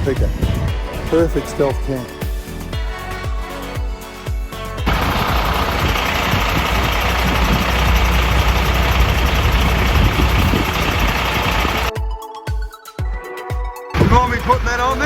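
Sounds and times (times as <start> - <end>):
background music: 0.0 - 15.0
vehicle engine rumbling: 4.9 - 11.9, 14.0 - 15.0.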